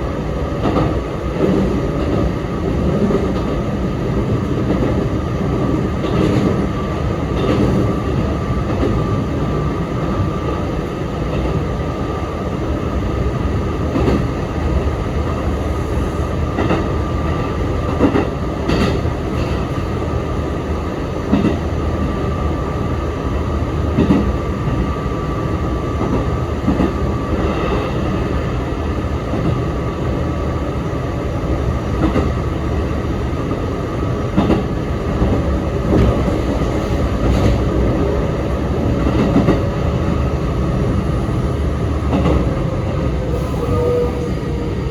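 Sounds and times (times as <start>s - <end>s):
electric train rumble: 0.0s - 44.9s.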